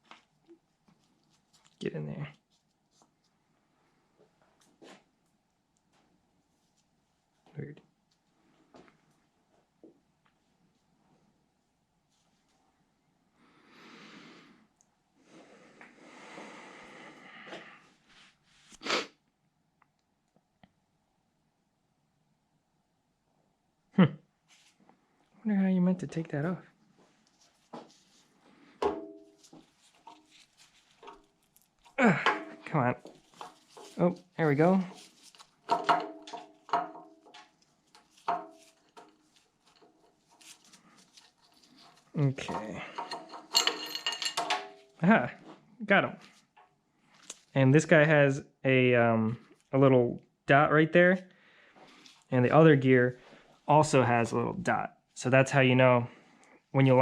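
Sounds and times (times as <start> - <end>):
person breathing noisily: 13.5 - 17.9
metal parts tapping and scraping: 28.8 - 34.0, 34.7 - 45.0.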